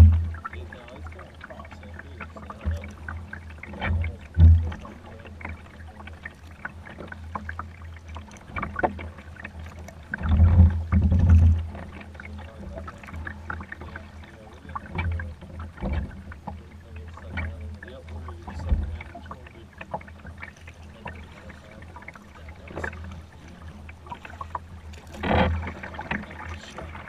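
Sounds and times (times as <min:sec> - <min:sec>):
dull low thumps: 0:00.0 - 0:00.6, 0:03.8 - 0:04.8
paddle splashes and drips: 0:00.0 - 0:27.0.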